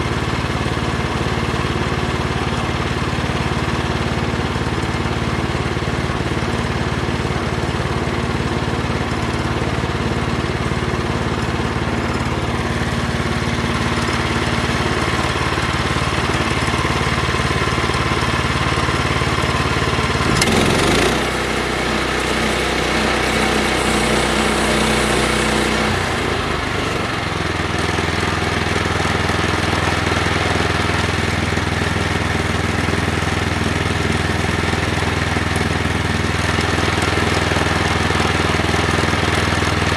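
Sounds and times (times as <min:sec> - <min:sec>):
small gas engine running: 0:00.0 - 0:39.9
loud clatter: 0:20.0 - 0:21.5.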